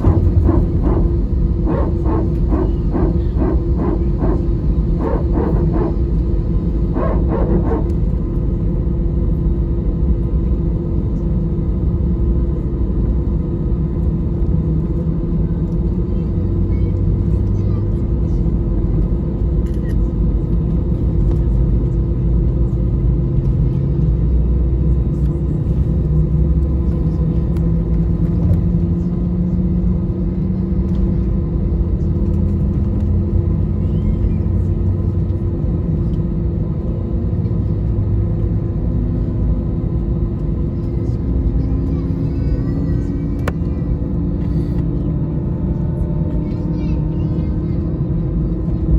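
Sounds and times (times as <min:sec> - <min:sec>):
airflow: 0:00.0 - 0:08.4
jet engines rumbling in cabin: 0:00.0 - 0:48.9.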